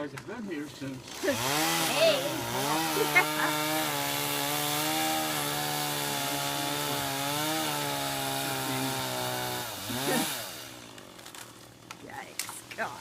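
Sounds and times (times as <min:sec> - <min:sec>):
chainsaw running: 0:00.8 - 0:11.2.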